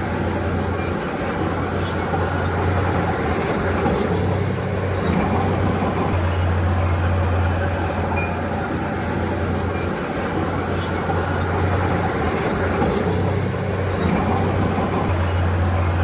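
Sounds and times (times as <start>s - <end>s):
diesel engine droning: 0.0s - 16.0s
rumbling work noise: 0.0s - 16.0s.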